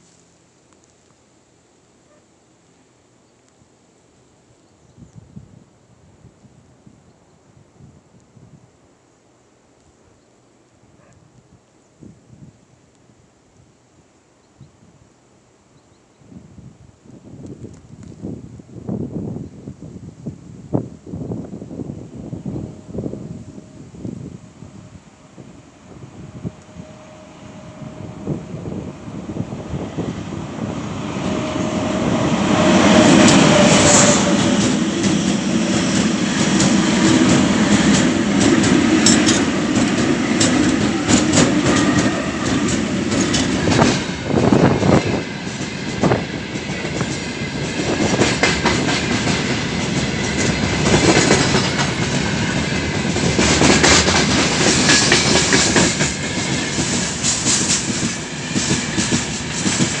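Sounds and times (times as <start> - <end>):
freight train rumble: 18.8 - 60.0
wheels clacking over rail joints: 32.6 - 60.0.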